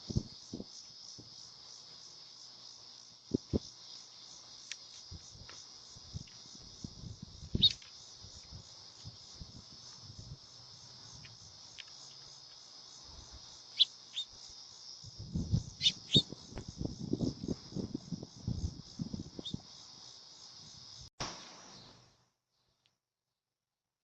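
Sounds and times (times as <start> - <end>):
insects trilling: 0.0 - 22.2.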